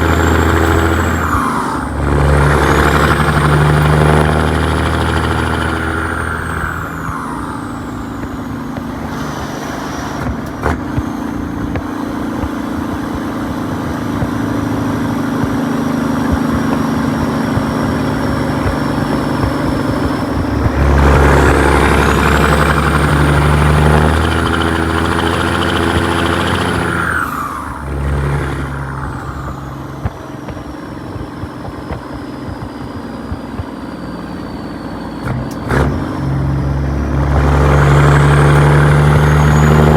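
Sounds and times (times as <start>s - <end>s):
diesel truck engine running: 0.0s - 39.9s
high turbo whistle: 32.1s - 39.9s.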